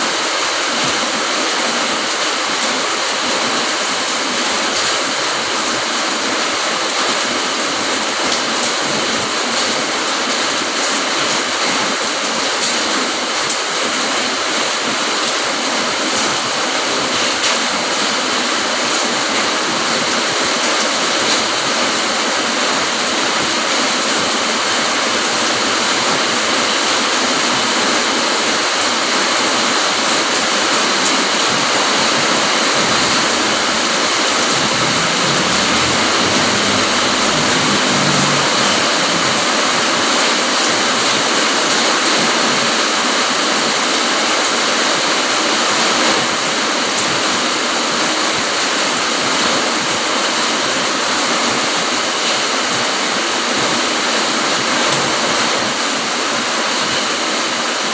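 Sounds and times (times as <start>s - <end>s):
steady rain falling: 0.0s - 57.9s
brief low rumble: 33.2s - 39.7s.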